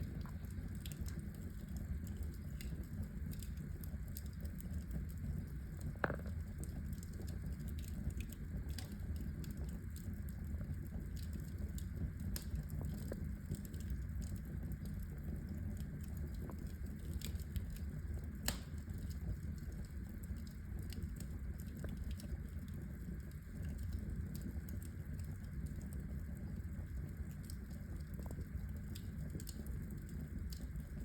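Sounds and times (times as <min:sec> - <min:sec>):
fire crackling with pops: 0:00.0 - 0:31.0
low rumble of flame: 0:00.0 - 0:31.0.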